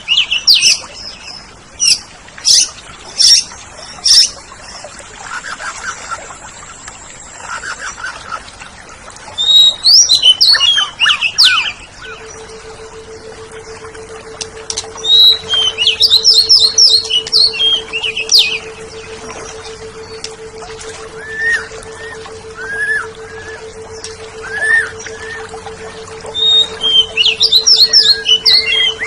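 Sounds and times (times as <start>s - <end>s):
faint steady hum: 0.0s - 29.0s
bird whistling song: 9.4s - 29.0s
bird chattering trill: 14.6s - 19.2s.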